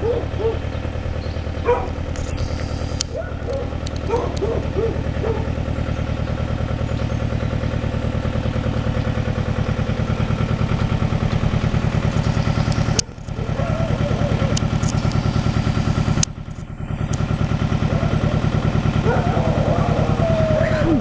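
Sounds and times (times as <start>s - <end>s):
dog barking: 0.0s - 0.6s, 1.6s - 2.0s, 3.1s - 5.5s, 13.4s - 14.4s, 19.0s - 20.4s
tractor engine running: 0.0s - 21.0s.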